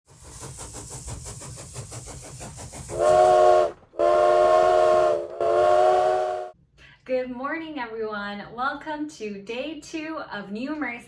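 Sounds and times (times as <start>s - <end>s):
steam locomotive chuffing: 0.1s - 6.6s
multi-tone steam whistle blasts: 2.9s - 6.6s.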